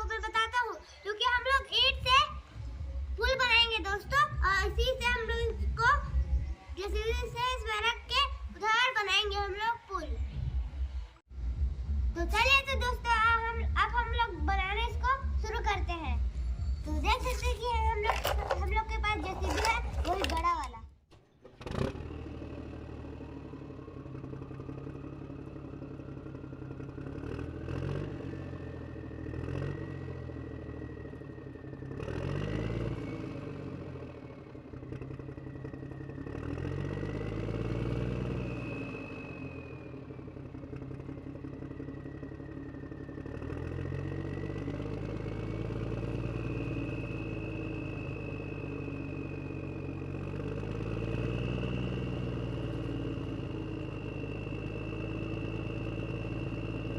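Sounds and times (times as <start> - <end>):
toy motor whining: 16.7 - 20.8.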